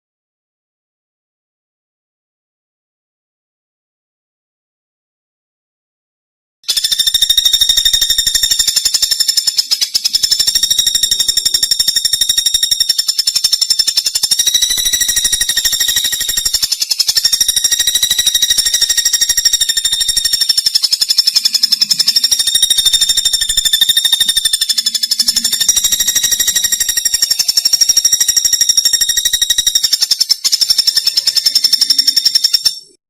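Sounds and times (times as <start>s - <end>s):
high-pitched buzzing trill: 6.7s - 33.0s.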